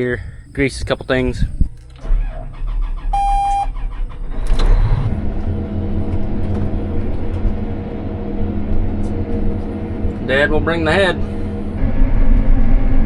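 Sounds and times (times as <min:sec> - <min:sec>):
diesel engine running: 0:01.6 - 0:13.0
brief noise: 0:03.2 - 0:03.8.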